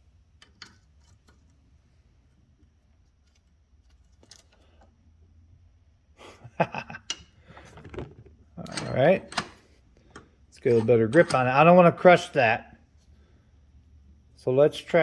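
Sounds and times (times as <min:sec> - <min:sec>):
low steady hum: 0:00.0 - 0:15.0
tools and small parts clicking: 0:07.0 - 0:08.0, 0:08.6 - 0:11.5.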